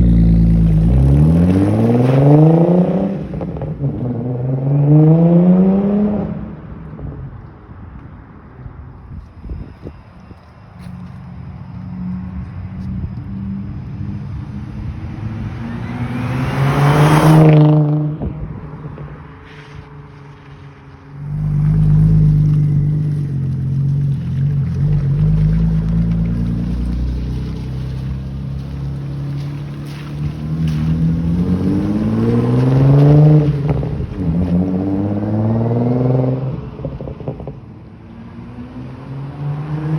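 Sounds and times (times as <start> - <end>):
car engine revving: 0.0 - 6.6, 14.8 - 19.1, 20.5 - 37.6.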